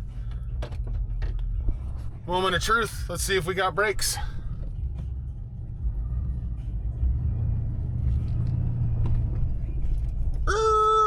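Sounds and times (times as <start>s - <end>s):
pickup truck driving off: 5.8s - 10.5s.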